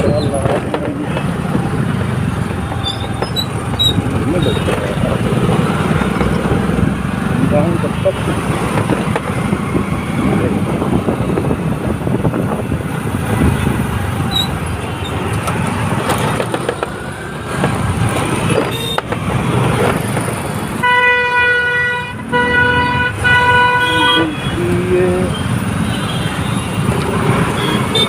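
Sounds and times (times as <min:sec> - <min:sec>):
road traffic engines: 0:00.0 - 0:28.0
vehicle horn blast: 0:20.8 - 0:24.6.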